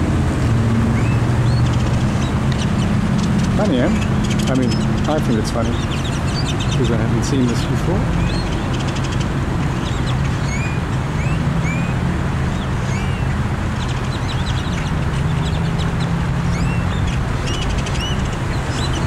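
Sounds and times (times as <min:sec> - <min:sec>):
flock of birds chirping: 0:00.8 - 0:19.0.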